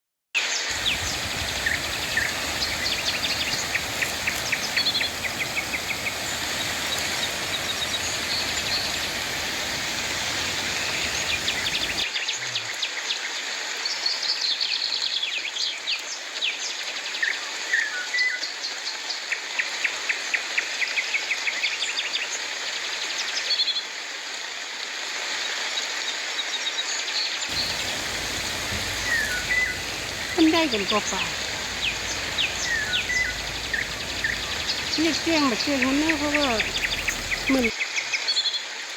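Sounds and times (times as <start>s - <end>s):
steady rain falling: 0.7s - 12.1s, 27.5s - 37.8s
bird trilling and chirping: 27.5s - 37.7s.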